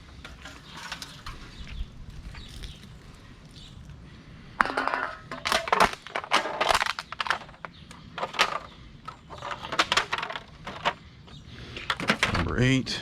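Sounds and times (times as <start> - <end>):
litter crunching and crinkling: 2.1 - 4.0.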